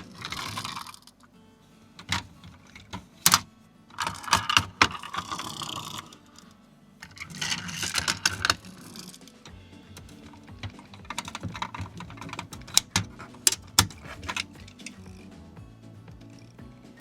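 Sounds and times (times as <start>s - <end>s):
small metal parts clattering: 0.0s - 1.2s, 2.0s - 6.2s, 7.0s - 15.1s
toy truck parts clicking: 0.0s - 1.2s, 2.0s - 15.2s.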